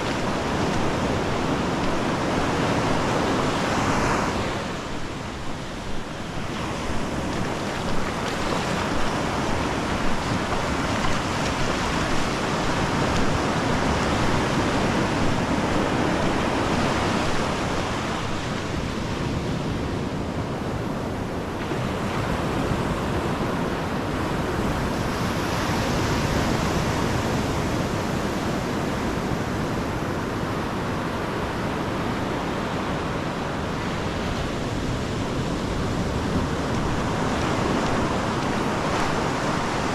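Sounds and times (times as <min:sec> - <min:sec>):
walking footsteps thumps: 0:00.0 - 0:03.0, 0:06.8 - 0:13.4
ocean surf washing onto beach: 0:00.0 - 0:39.9.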